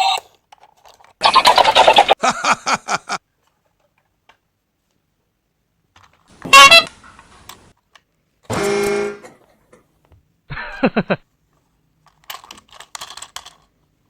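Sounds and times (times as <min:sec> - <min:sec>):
toy train horn toots: 0:06.4 - 0:07.0, 0:08.5 - 0:09.4.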